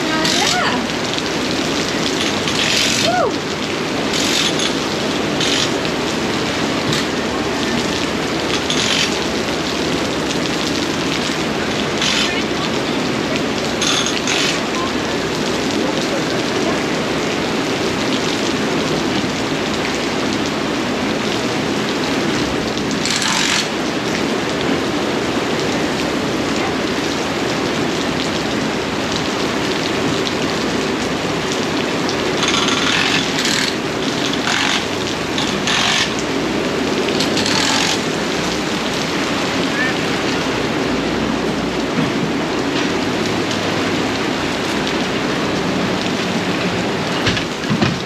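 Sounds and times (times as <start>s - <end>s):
sharp rattling bursts: 0.0s - 0.8s, 2.1s - 3.2s, 4.0s - 6.2s, 8.5s - 9.5s, 11.9s - 12.6s, 13.8s - 14.8s, 23.0s - 23.8s, 32.4s - 36.3s, 37.2s - 38.4s
steady rain: 0.0s - 48.0s.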